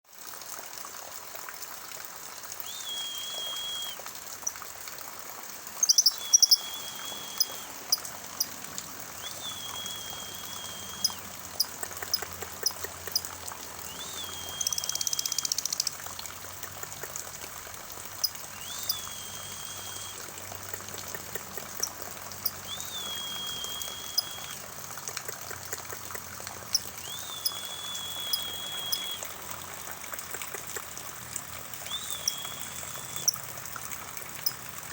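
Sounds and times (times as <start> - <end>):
rainwater pouring and trickling: 0.0 - 34.9
bird whistling one note: 2.6 - 4.0, 5.8 - 7.7, 9.2 - 11.2, 13.9 - 15.7, 18.6 - 20.2, 22.6 - 24.5, 27.0 - 29.2, 31.9 - 33.3
sharp chirps and ticks: 5.8 - 8.6, 9.2 - 13.3, 13.9 - 16.0, 18.2 - 29.2, 31.9 - 33.4, 34.4 - 34.6.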